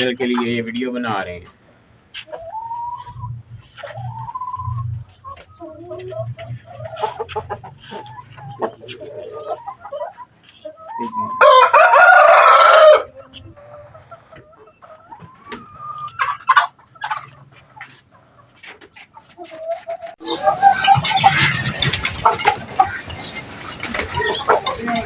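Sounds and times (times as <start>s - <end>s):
chickens clucking: 0.0s - 25.0s
rooster crowing: 11.3s - 13.2s.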